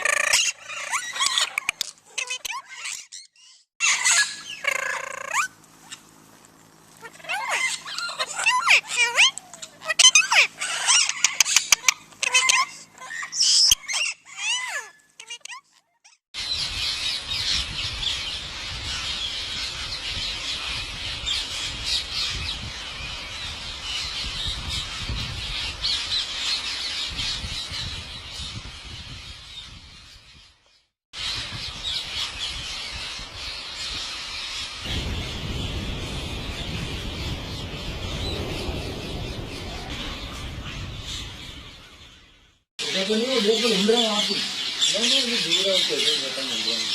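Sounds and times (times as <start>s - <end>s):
parrots squawking and chattering: 0.0s - 6.0s, 7.0s - 16.2s, 42.8s - 46.9s
low rumble: 34.9s - 42.6s.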